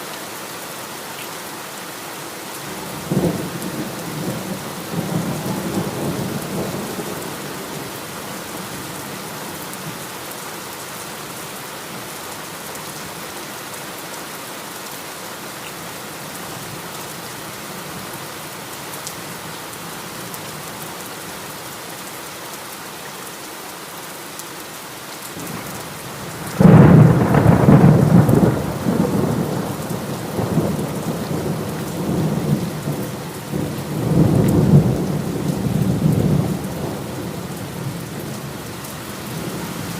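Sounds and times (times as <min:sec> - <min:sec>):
heavy rain falling: 0:00.0 - 0:39.9
thunder rumbling: 0:26.2 - 0:38.5
loud thunderclap: 0:26.5 - 0:32.6.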